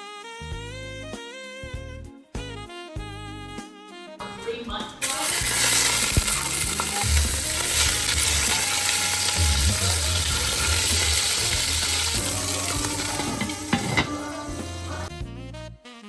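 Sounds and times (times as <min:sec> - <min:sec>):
utensil knocking on pan: 0:05.0 - 0:14.9
sausage sizzling in a frying pan: 0:05.0 - 0:15.1.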